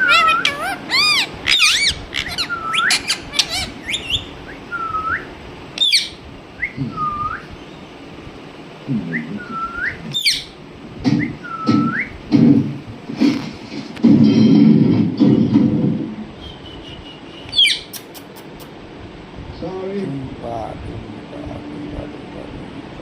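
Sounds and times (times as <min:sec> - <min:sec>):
parrot throaty chatter: 0:00.0 - 0:04.2
parrot squeaks: 0:00.0 - 0:04.4, 0:05.8 - 0:06.2, 0:10.1 - 0:10.5, 0:17.4 - 0:18.1
parrot whistling: 0:00.0 - 0:07.5, 0:09.3 - 0:10.5, 0:16.4 - 0:18.1.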